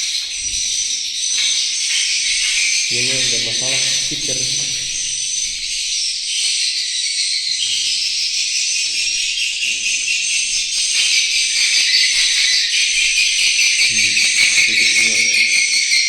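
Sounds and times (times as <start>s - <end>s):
distorted bird chirping from speaker: 2.3s - 10.3s, 11.2s - 16.0s.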